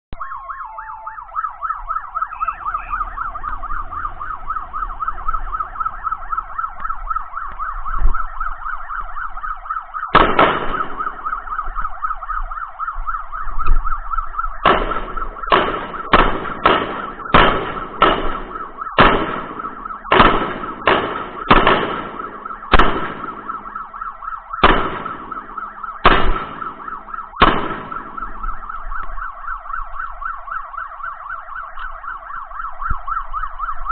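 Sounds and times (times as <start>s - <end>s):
siren warbling: 0.1s - 33.9s
gunshots: 10.1s - 11.4s, 14.6s - 23.9s, 24.5s - 28.6s.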